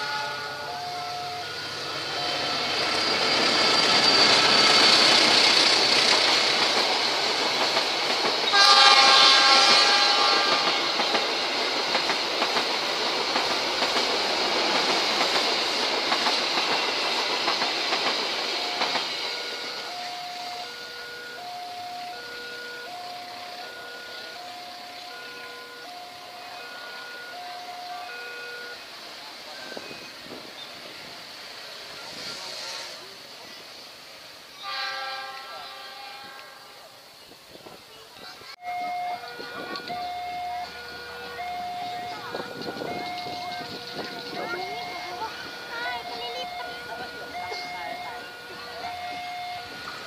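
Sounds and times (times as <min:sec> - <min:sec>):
train horn blast: 0:00.0 - 0:02.7, 0:08.5 - 0:11.1, 0:25.0 - 0:28.8, 0:34.6 - 0:37.0
level-crossing alarm chiming: 0:00.0 - 0:06.9, 0:15.5 - 0:28.9, 0:38.6 - 0:50.0
train wheels clattering on rails: 0:00.8 - 0:20.6, 0:39.2 - 0:50.0.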